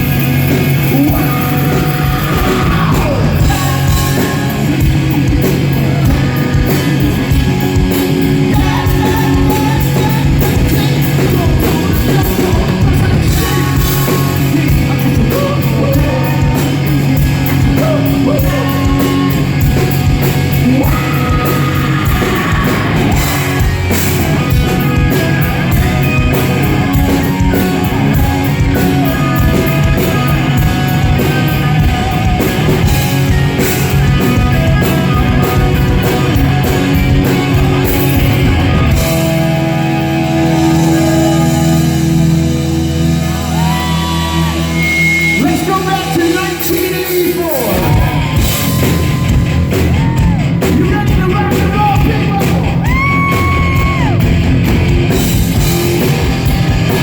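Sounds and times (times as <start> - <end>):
distorted electric guitars: 0.0 - 57.0
drums: 0.0 - 57.0
person singing: 0.7 - 42.6.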